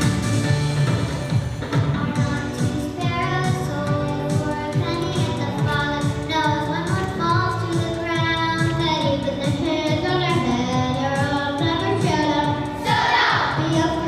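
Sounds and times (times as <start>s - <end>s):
instrumental accompaniment with beat: 0.0s - 14.0s
children singing: 12.8s - 14.0s.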